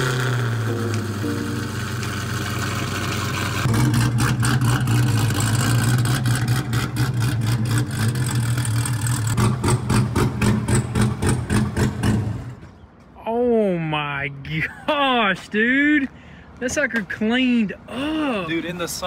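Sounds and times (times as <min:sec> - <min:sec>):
low car engine note: 0:00.0 - 0:11.4.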